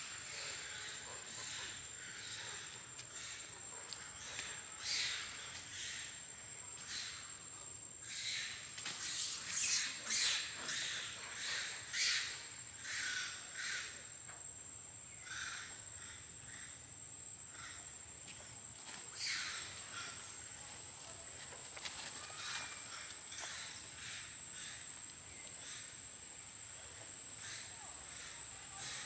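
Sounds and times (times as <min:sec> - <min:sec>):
high-pitched insect whine: 0:00.0 - 0:29.0.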